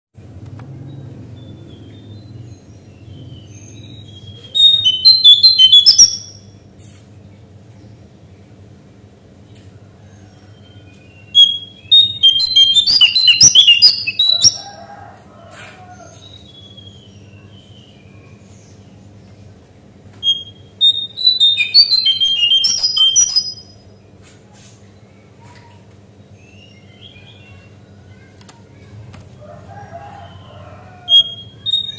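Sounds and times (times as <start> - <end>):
bird singing high rapid notes: 3.0 - 6.5, 11.3 - 14.8, 20.2 - 23.8, 31.0 - 31.9.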